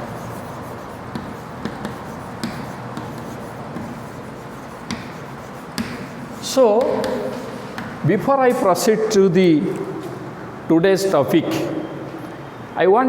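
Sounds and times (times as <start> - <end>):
pen scratching and tapping: 0.0 - 8.0
room noise: 0.0 - 13.0.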